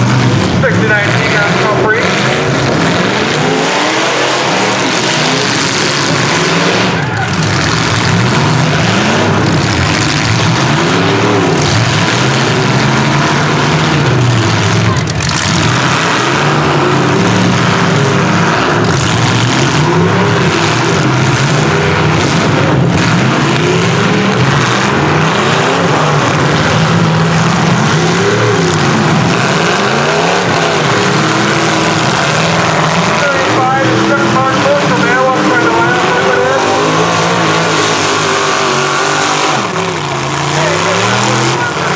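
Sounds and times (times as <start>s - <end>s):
vehicle engines revving: 0.0s - 41.9s
vehicles crashing: 0.0s - 41.9s.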